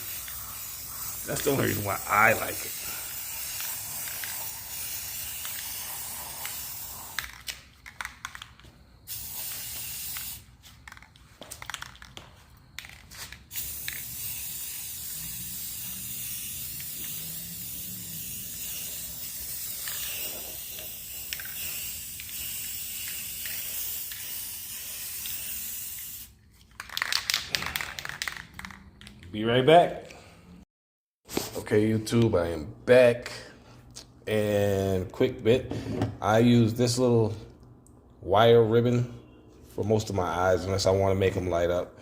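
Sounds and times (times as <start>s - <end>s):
spray paint can hissing: 0.0s - 12.2s, 12.8s - 28.8s.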